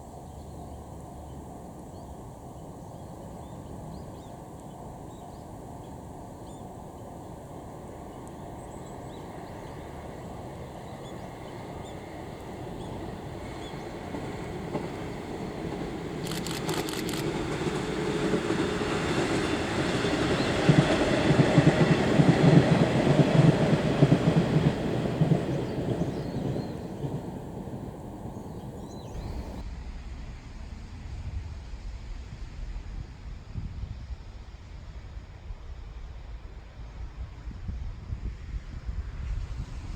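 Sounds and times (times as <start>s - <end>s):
diesel train rumble: 0.0s - 39.9s
wind on microphone: 17.2s - 39.9s.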